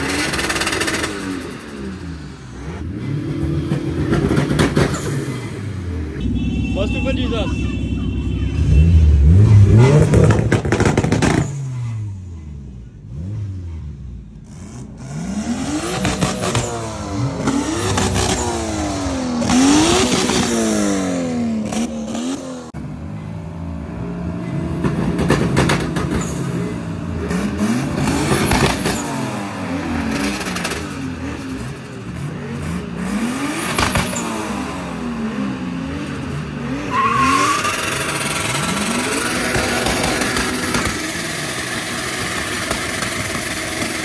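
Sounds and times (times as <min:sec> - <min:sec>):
car engine revving hard: 0:14.5 - 0:22.7, 0:25.6 - 0:44.0.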